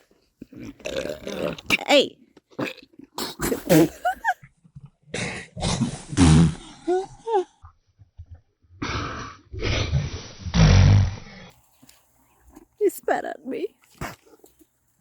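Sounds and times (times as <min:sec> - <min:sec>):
alpaca spitting: 0:02.5 - 0:04.3, 0:13.8 - 0:14.6.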